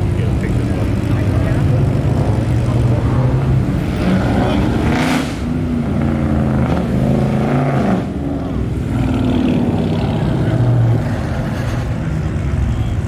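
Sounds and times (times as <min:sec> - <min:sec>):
voices in background: 0:00.0 - 0:05.6
car engines running at low revs: 0:00.0 - 0:13.0.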